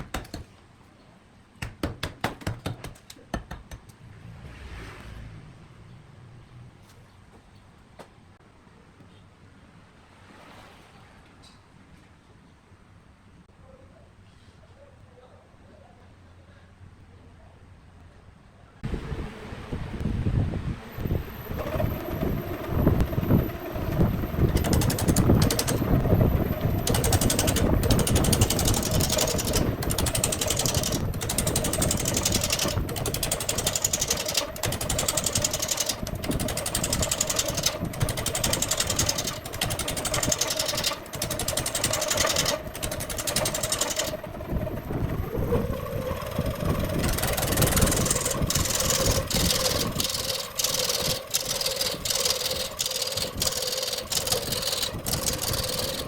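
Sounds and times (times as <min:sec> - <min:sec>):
wood lathe motor hum: 0:20.9 - 0:56.0.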